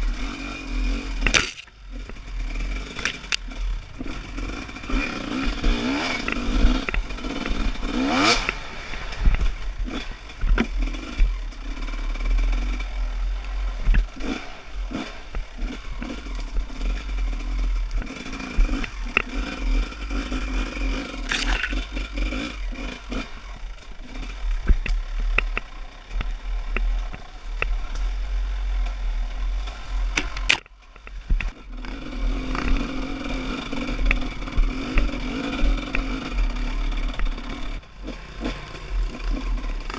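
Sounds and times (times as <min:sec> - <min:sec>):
dirt bike engine revving: 0:00.0 - 0:39.9
bike knocks and clatter: 0:08.2 - 0:11.4, 0:13.8 - 0:14.4, 0:24.6 - 0:27.8, 0:30.1 - 0:31.6.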